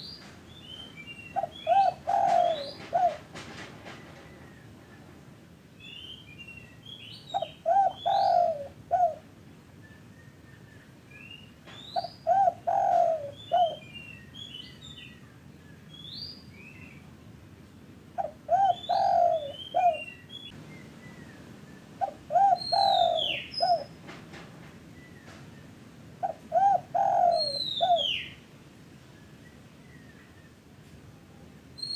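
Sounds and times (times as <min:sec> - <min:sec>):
small birds chirping: 0:00.0 - 0:03.2, 0:05.8 - 0:09.1, 0:11.1 - 0:17.2, 0:18.2 - 0:24.0, 0:24.9 - 0:28.5
dove cooing: 0:01.4 - 0:03.4, 0:07.3 - 0:09.3, 0:12.0 - 0:13.9, 0:18.2 - 0:20.2, 0:22.0 - 0:24.0, 0:26.2 - 0:28.4.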